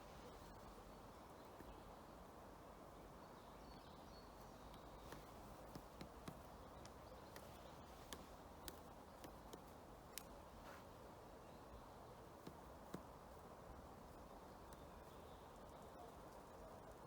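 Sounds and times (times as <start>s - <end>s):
low steady background hiss: 0.0s - 17.0s
woodpecker pecking at wood: 4.5s - 10.7s, 12.3s - 13.3s.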